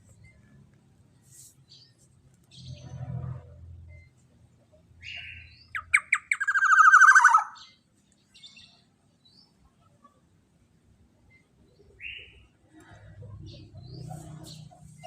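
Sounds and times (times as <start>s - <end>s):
fast rattling bird trill: 5.0s - 7.6s
bird harsh squawking call: 5.0s - 7.7s.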